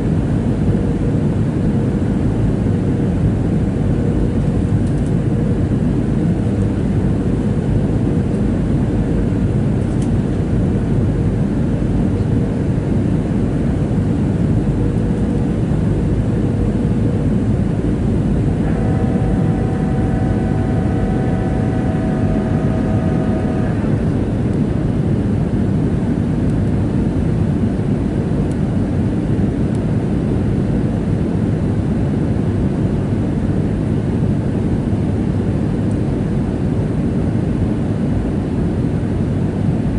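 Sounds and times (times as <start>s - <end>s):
jet engine cabin rumble: 0.0s - 39.9s
thin steady whining tones: 16.0s - 25.8s.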